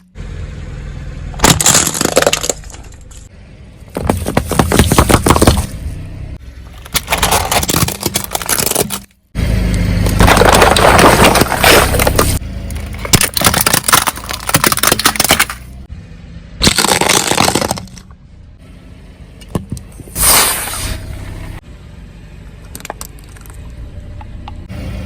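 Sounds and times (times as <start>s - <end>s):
low engine hum: 0.0s - 14.6s, 15.2s - 16.6s, 17.8s - 25.0s
tyre crushing crunchy objects: 1.4s - 3.2s, 3.9s - 5.8s, 6.7s - 9.1s, 10.0s - 15.8s, 16.6s - 18.0s.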